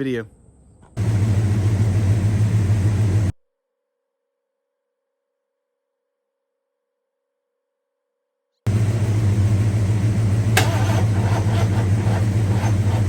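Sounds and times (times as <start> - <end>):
engine running with pulsing rumble: 0.8 - 3.3, 8.7 - 13.0.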